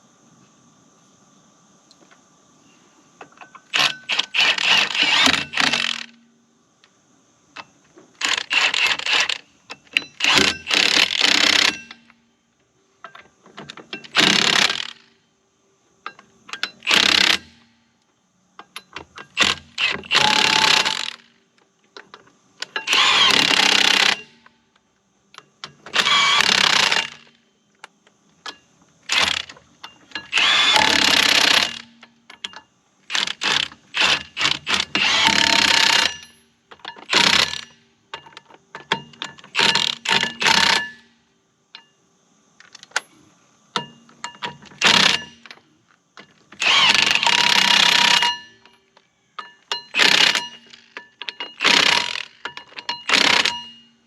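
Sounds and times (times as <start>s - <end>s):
clicks and clanks: 3.2s - 6.2s, 6.8s - 12.2s, 13.0s - 15.0s, 16.0s - 17.6s, 18.6s - 41.1s, 41.7s - 42.0s, 42.6s - 54.0s
power tool bursts: 3.7s - 6.1s, 8.2s - 9.4s, 10.1s - 12.1s, 14.1s - 15.0s, 16.8s - 17.6s, 19.4s - 21.2s, 22.8s - 24.4s, 25.9s - 27.3s, 29.1s - 29.5s, 30.2s - 31.9s, 33.1s - 36.3s, 37.0s - 37.7s, 44.8s - 45.4s, 46.6s - 48.4s, 49.9s - 50.9s, 51.6s - 52.4s, 53.0s - 53.7s.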